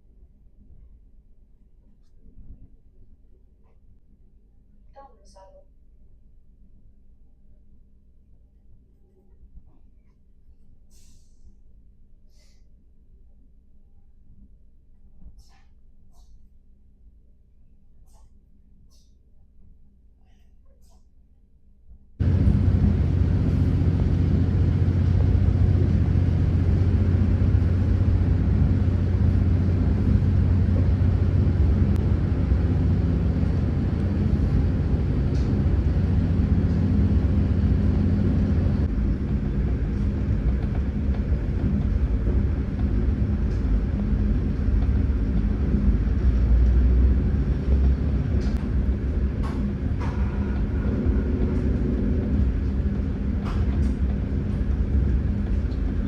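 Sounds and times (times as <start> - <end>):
train carriage rumbling: 22.2 - 56.0.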